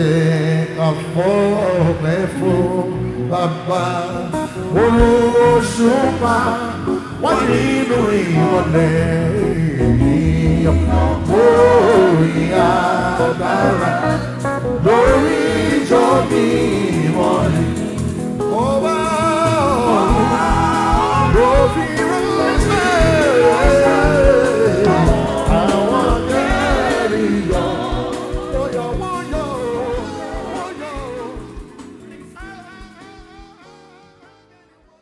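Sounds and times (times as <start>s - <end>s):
gospel singing with band: 0.0s - 34.9s
steady low beat: 5.0s - 5.7s, 9.4s - 13.8s, 14.4s - 18.6s, 19.7s - 33.1s.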